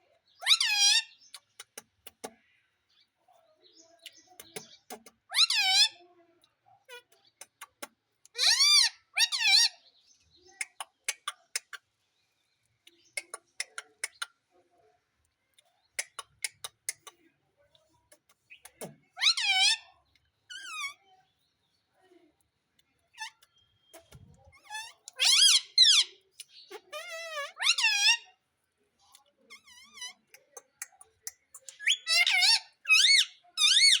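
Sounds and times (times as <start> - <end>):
parrot squawking: 0.4 - 1.1, 5.3 - 6.0, 8.4 - 9.7, 19.2 - 19.9, 20.5 - 21.0, 24.6 - 26.1, 26.7 - 28.3, 31.6 - 34.0.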